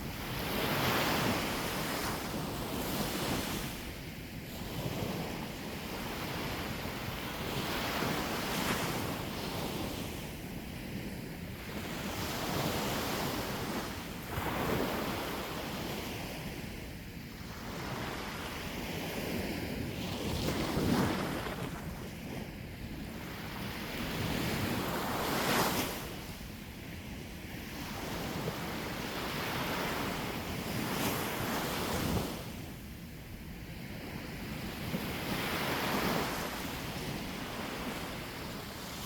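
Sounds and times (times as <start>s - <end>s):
sea waves breaking on shore: 0.0s - 3.9s, 4.5s - 26.4s, 33.7s - 39.0s
wind buffeting microphone: 0.0s - 32.6s.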